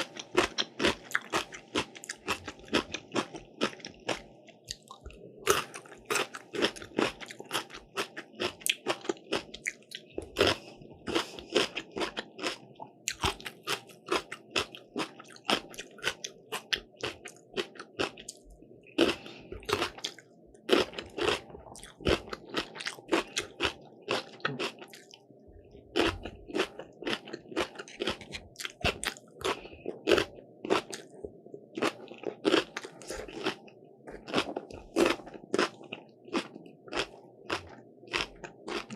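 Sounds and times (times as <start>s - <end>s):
crunchy food being chewed: 0.0s - 38.9s.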